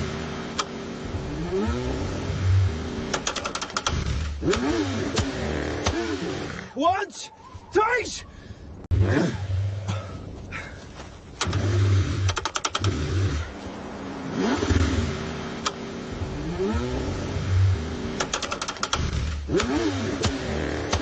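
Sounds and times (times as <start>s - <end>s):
rapid clattering ticks: 3.1s - 4.6s, 12.3s - 12.9s, 18.2s - 19.7s
car engine cold start: 3.1s - 6.3s, 11.4s - 13.5s, 18.2s - 21.0s.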